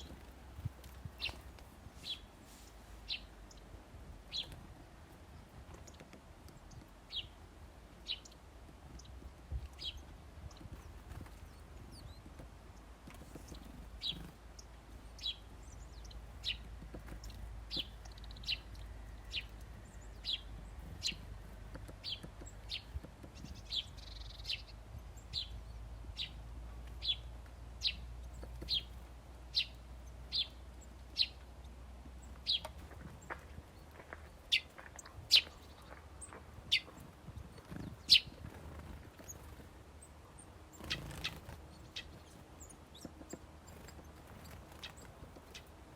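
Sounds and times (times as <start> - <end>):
small bird chirping: 0.0 - 4.6, 5.4 - 7.4, 8.0 - 45.9.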